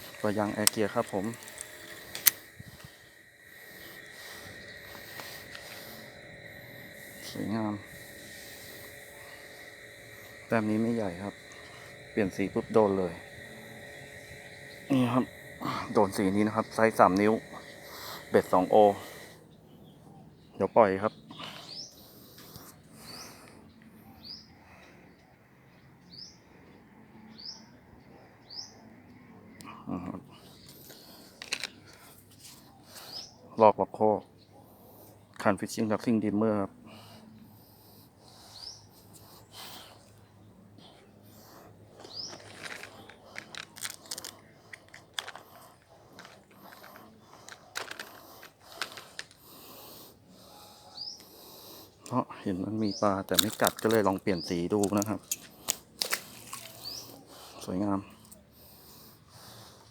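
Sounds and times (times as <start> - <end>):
small clicks and handling noises: 0.0 - 3.0, 30.6 - 32.7, 41.9 - 49.5, 53.3 - 57.2
bird chirping: 40.5 - 43.4.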